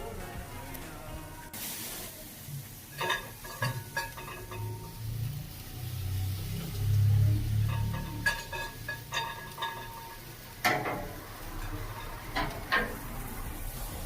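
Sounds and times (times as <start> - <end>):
metal tongs clinking on grill grate: 2.9 - 5.6, 7.4 - 13.3.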